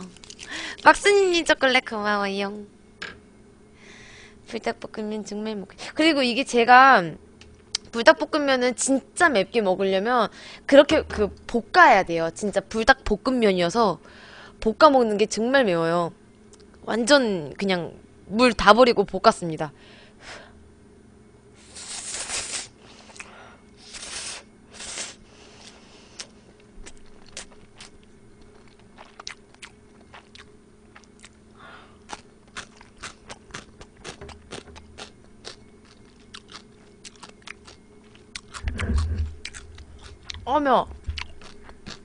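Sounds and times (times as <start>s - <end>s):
crunchy chewing of pickled radish: 21.7s - 42.0s.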